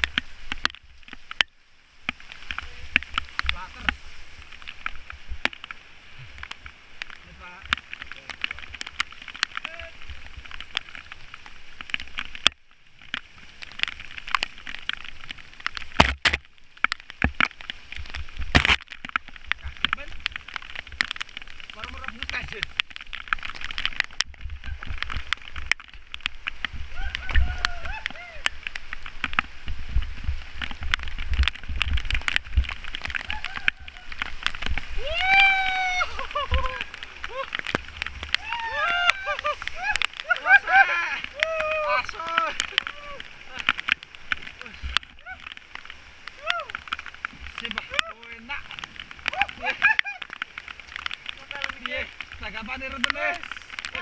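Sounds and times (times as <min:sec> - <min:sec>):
rain on microphone: 0:00.0 - 0:54.0
bicycle low rumble: 0:22.7 - 0:39.9.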